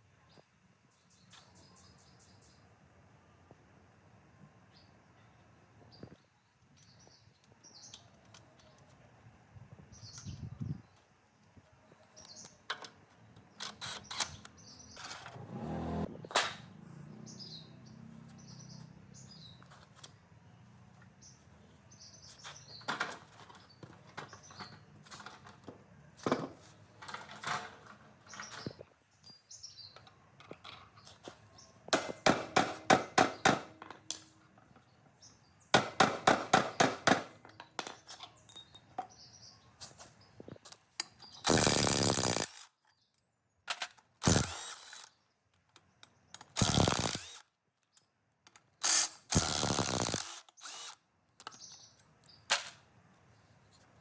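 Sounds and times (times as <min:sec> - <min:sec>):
workshop knocks and clicks: 0:22.8 - 0:28.8, 0:31.9 - 0:34.8, 0:35.7 - 0:39.2.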